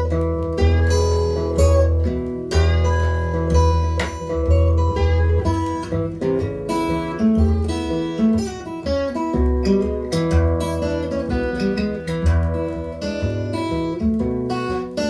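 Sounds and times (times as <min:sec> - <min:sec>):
acoustic guitar playing blues: 0:00.0 - 0:15.0.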